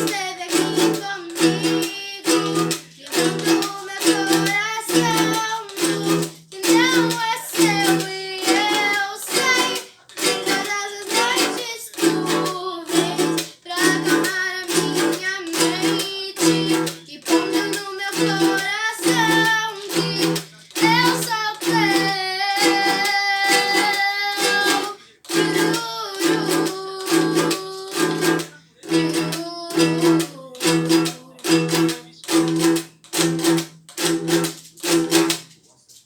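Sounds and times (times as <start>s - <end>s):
person singing worship song: 0.0s - 32.6s
strummed string instrument: 0.0s - 35.7s.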